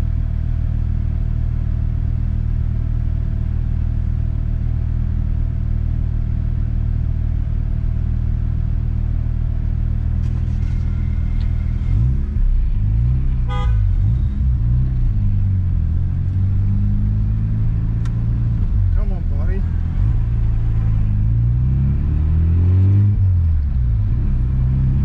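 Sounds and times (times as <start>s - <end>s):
car engine idling and revving: 0.0s - 25.0s
car horn toot: 13.4s - 14.2s.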